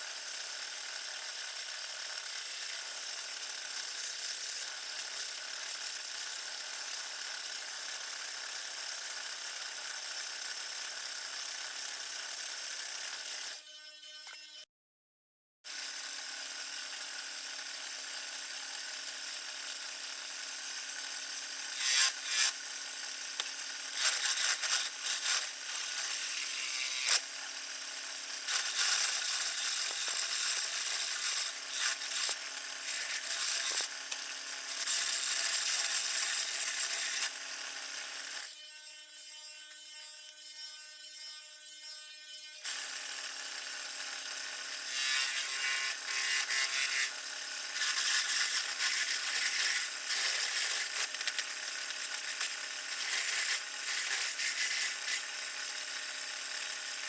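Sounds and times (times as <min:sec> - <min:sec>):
turning tool cutting wood: 0:00.0 - 0:13.6, 0:15.7 - 0:38.6, 0:42.7 - 0:57.0
wood lathe motor humming: 0:16.4 - 0:38.4, 0:42.7 - 0:57.0.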